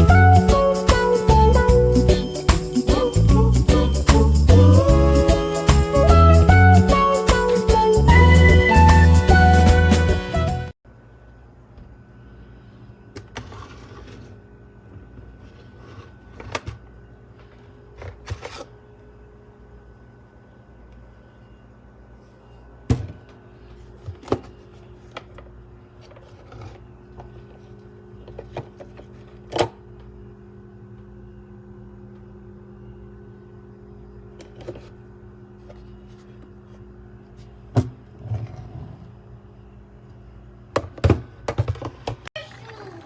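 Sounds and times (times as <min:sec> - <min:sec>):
low electrical hum: 0:10.8 - 0:43.0.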